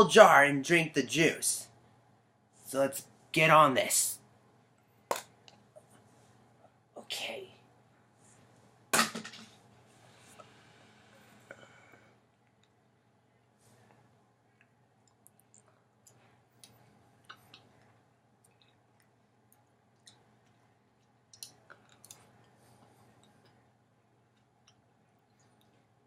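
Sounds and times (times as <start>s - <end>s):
person chewing: 14.6s - 25.9s.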